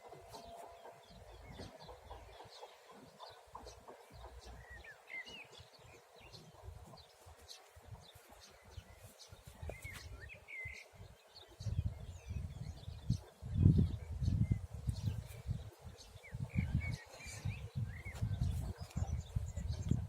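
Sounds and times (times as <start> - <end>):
small birds chirping: 0.0 - 20.0
wind buffeting microphone: 0.1 - 20.0.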